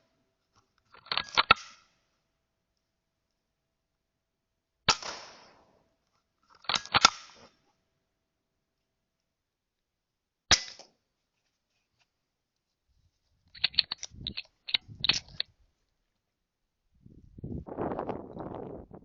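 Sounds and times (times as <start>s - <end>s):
air rifle firing crack: 4.9s - 5.6s
sharp clicks: 13.5s - 15.5s.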